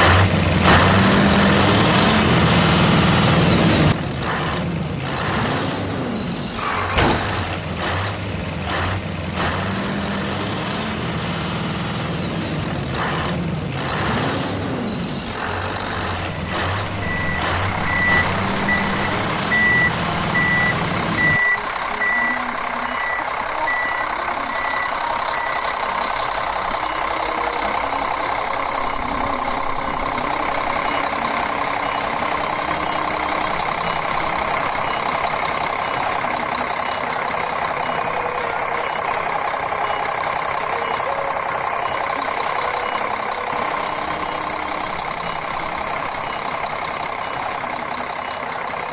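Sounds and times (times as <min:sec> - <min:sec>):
vehicle rumble: 0:00.0 - 0:48.9
truck reversing alarm beeping: 0:15.7 - 0:48.9.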